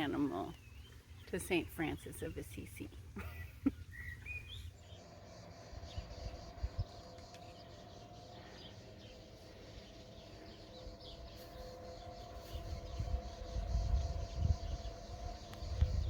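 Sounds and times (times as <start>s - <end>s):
small birds chirping: 0.0s - 16.0s
low rumbling on microphone: 3.9s - 16.0s
steady two-note hum: 4.8s - 16.0s.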